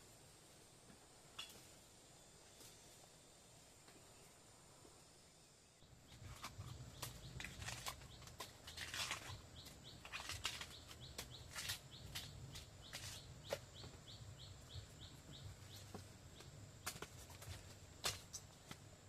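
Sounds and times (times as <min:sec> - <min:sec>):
rustling and crackling: 0:06.1 - 0:14.1, 0:15.3 - 0:18.9.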